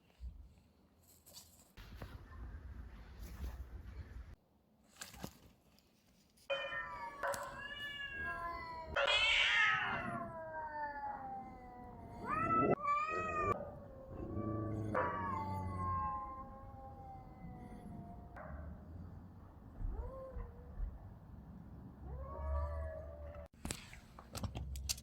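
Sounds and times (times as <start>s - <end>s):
cats yowling: 6.5s - 18.6s, 19.7s - 21.0s, 22.0s - 23.6s.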